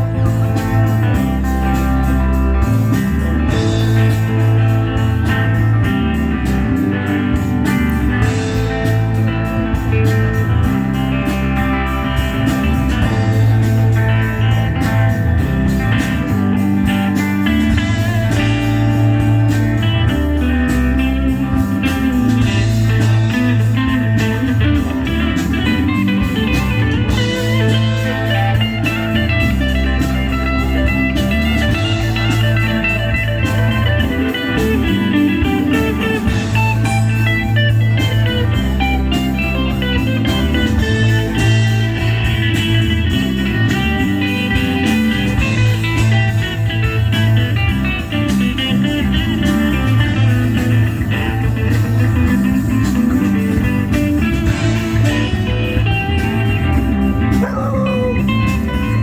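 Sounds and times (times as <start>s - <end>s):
guitar: 0.0s - 59.0s
live band playing: 0.0s - 59.0s.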